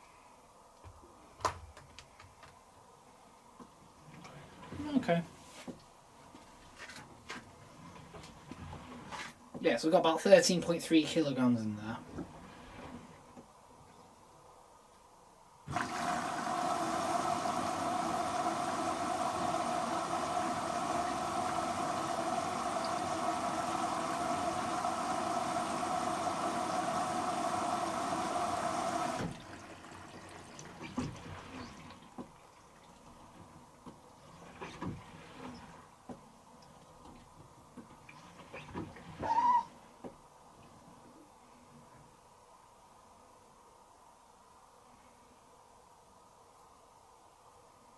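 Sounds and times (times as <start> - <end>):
water rushing into washing machine: 15.7 - 36.1, 36.7 - 39.7.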